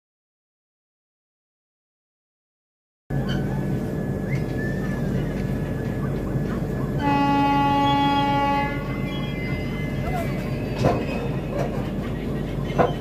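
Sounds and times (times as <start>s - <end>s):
train rumble and hum: 3.1s - 13.0s
train horn blast: 7.0s - 9.6s.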